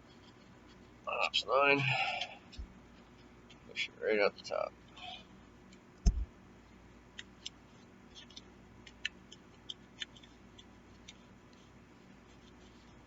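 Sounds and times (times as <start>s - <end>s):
short knock: 6.0s - 6.3s.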